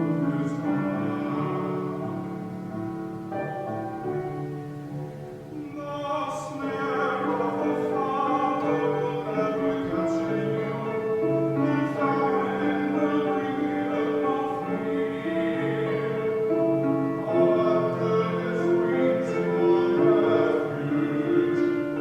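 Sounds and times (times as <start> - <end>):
person singing long notes: 4.9 - 22.0.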